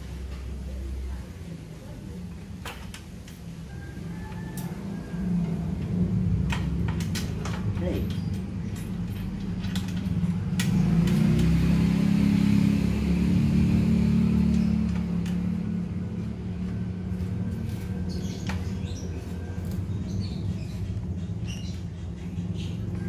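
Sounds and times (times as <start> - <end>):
sharp clicks: 6.5 - 11.6.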